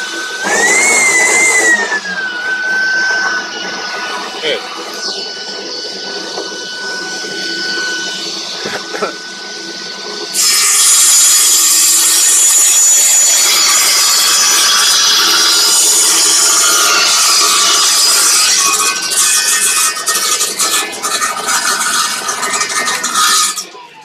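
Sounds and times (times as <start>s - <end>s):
saw blade whining: 0.0s - 24.0s
saw cutting plywood: 0.0s - 24.0s.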